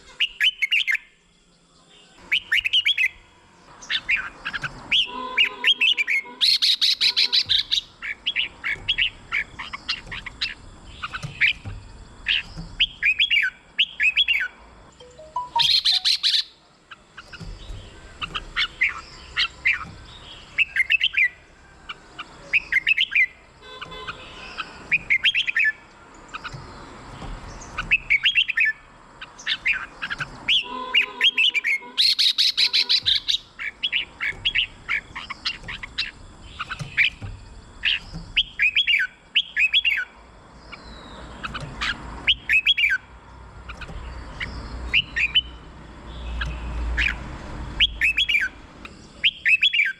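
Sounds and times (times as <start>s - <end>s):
bird chattering: 3.8s - 47.2s
bird singing whistled phrases: 12.3s - 16.6s, 29.4s - 37.2s, 37.9s - 40.1s, 49.2s - 49.9s.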